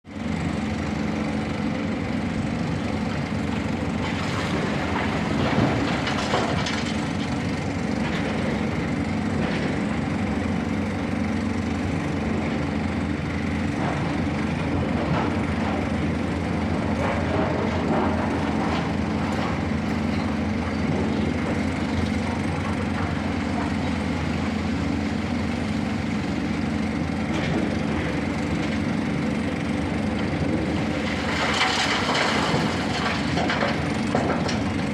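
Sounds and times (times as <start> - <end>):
heavy diesel engine running: 0.1 - 34.9
knocks and clatter: 4.0 - 8.6, 31.0 - 34.8.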